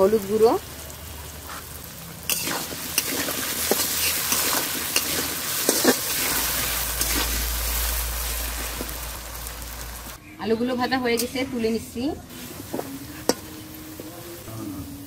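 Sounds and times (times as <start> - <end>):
food sizzling in hot oil: 0.0 - 10.2, 11.1 - 15.0
spatula scraping a pan: 2.3 - 7.5.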